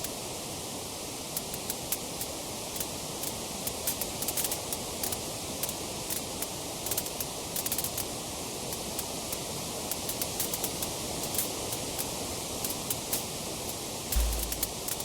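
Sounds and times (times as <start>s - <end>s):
steady hiss: 14.2s - 14.9s.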